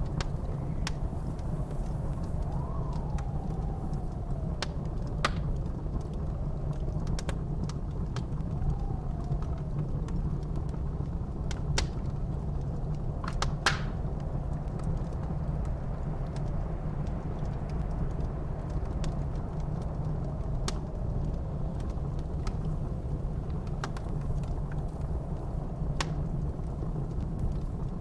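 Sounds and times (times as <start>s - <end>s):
faint wind whistle: 0.0s - 11.1s
low rumble of blizzard wind: 0.0s - 28.0s
wood fire crackling and popping: 0.0s - 28.0s.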